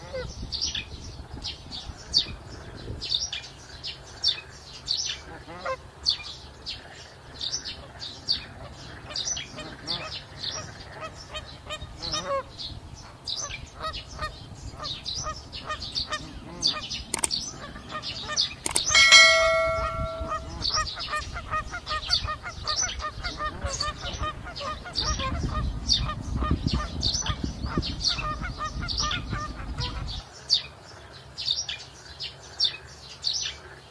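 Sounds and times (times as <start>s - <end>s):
small birds chirping: 0.2s - 33.9s
geese honking: 9.6s - 12.5s.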